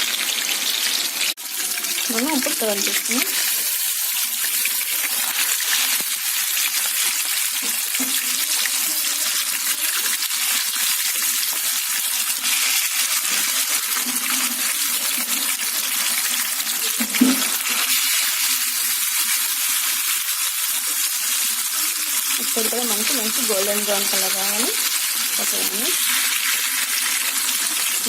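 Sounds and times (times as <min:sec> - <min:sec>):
deep-frying sizzle and crackle: 0:00.0 - 0:28.0.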